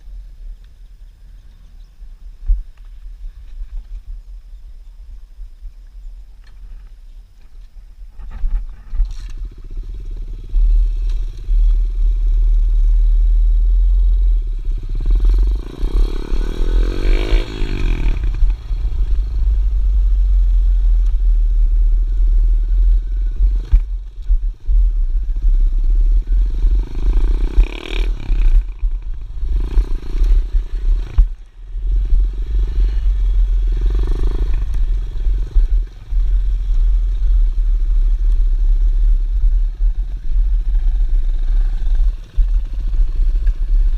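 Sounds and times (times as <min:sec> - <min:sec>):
wind rumble on microphone: 0:00.0 - 0:43.9
small motorbike engine revving: 0:14.5 - 0:19.7, 0:25.3 - 0:36.9.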